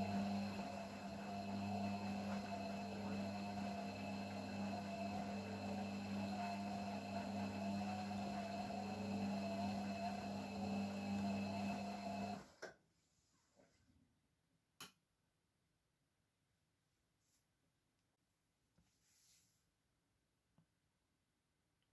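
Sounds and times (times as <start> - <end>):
washing machine running: 0.0 - 12.6.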